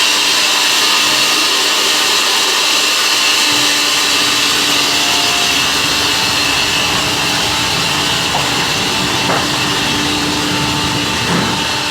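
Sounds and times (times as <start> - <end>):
sawmill saw cutting log: 0.0 - 11.9.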